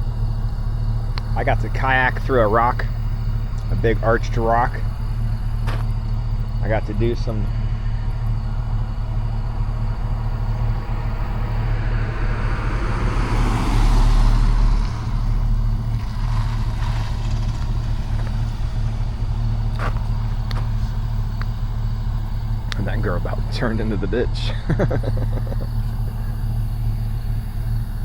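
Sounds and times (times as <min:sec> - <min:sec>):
car engine drone and road noise: 0:00.0 - 0:28.0
vehicle passing: 0:01.2 - 0:28.0.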